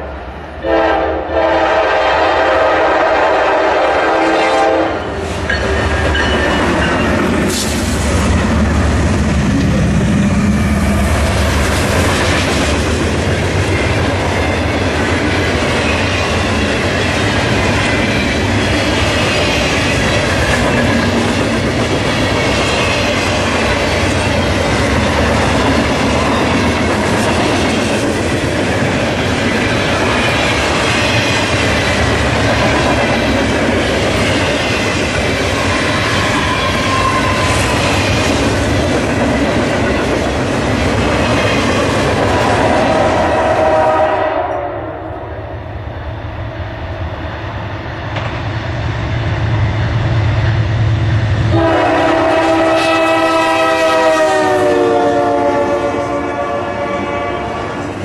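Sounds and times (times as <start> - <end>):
diesel locomotives rumbling: 0.0 - 58.0
train horn blast: 0.6 - 5.2, 42.3 - 45.2, 51.5 - 57.8.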